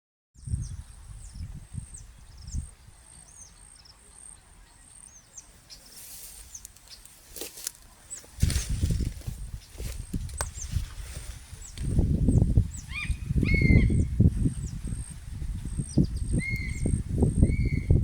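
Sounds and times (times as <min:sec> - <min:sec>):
small bird chirping: 0:11.6 - 0:18.0.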